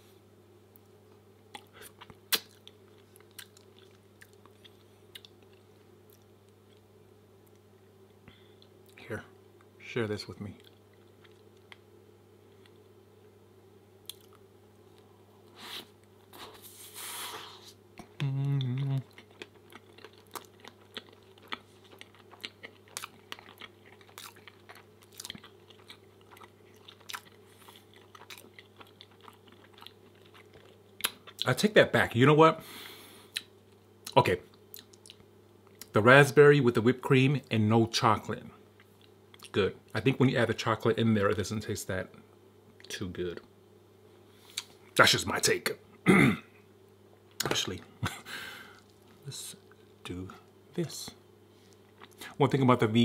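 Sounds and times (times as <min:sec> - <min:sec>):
person chewing with mouth clicks: 0:01.5 - 0:06.8, 0:14.0 - 0:14.4, 0:18.0 - 0:31.5, 0:33.3 - 0:35.9, 0:51.7 - 0:52.4.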